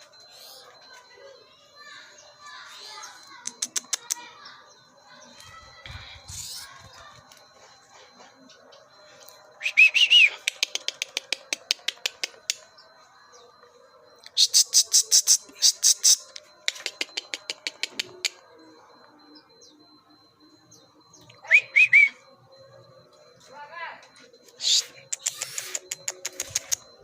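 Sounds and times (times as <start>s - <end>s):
bird whistled chirps: 9.6s - 10.6s, 21.4s - 22.2s
bird rapid clicking calls: 10.2s - 12.6s, 14.6s - 18.4s, 25.1s - 26.8s.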